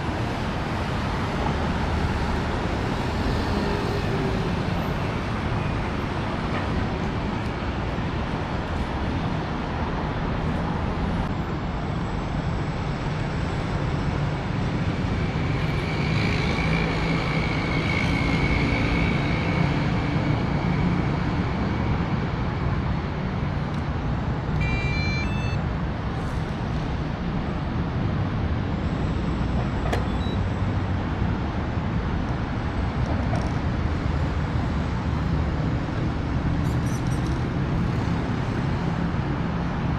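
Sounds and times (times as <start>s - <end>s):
road traffic rumble: 0.0s - 39.9s
high chirping tones: 24.6s - 25.6s.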